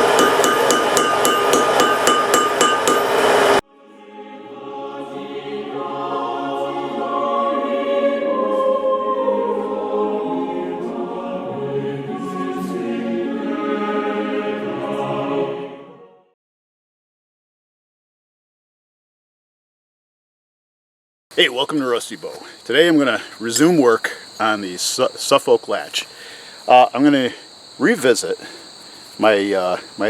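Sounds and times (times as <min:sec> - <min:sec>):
hammer ringing on anvil: 0:00.0 - 0:03.6
choir singing chords: 0:00.0 - 0:16.4.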